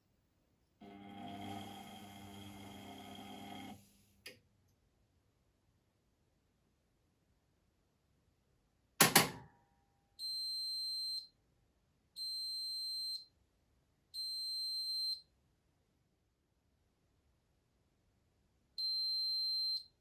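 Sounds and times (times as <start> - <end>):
washing machine buzzer beeps: 0.9 - 3.8, 10.2 - 11.3, 12.2 - 13.3, 14.2 - 15.2, 18.8 - 19.9.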